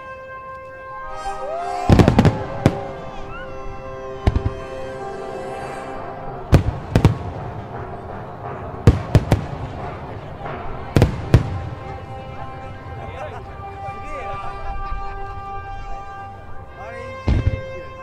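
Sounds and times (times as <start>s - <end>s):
orchestral music: 0.0s - 18.0s
firework bangs: 1.5s - 3.4s, 4.0s - 5.0s, 6.2s - 13.3s, 17.2s - 18.0s.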